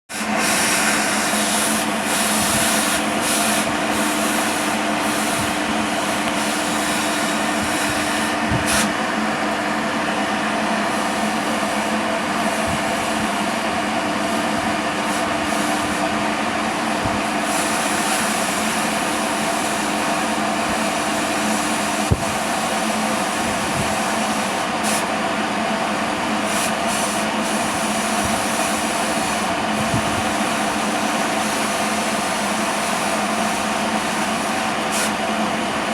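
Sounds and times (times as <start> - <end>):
machinery hissing and humming: 0.1 - 35.9.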